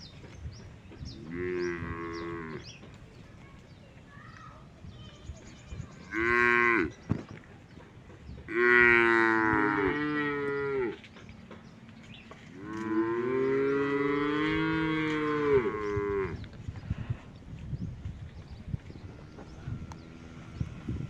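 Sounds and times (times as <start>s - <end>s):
cattle mooing: 8.5s - 11.0s, 12.6s - 16.4s.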